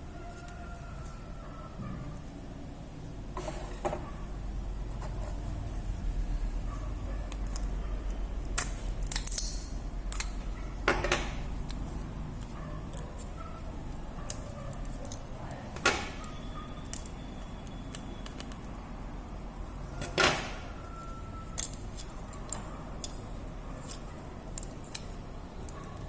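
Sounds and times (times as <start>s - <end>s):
steady low hum: 0.0s - 26.0s
small tools clicking and tapping: 8.4s - 11.8s, 14.2s - 18.7s, 21.5s - 23.2s, 23.8s - 26.0s.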